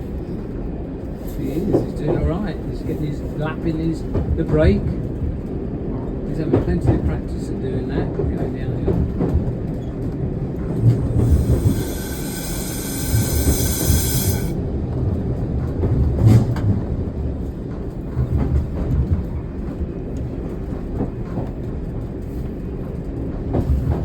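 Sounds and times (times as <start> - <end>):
railcar wheels rumbling on track: 0.0 - 24.0
air brake hissing and whistling: 11.1 - 14.6.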